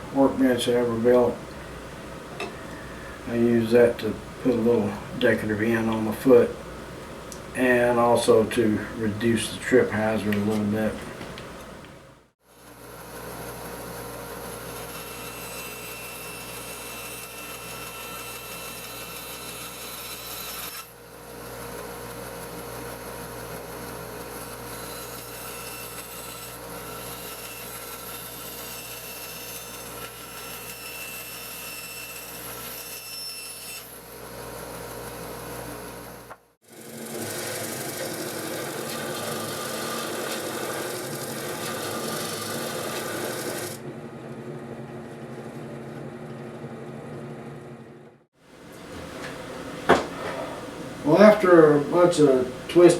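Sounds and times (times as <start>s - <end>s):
power saw cutting wood: 12.6s - 22.8s, 23.5s - 43.8s
machine running: 36.7s - 48.2s.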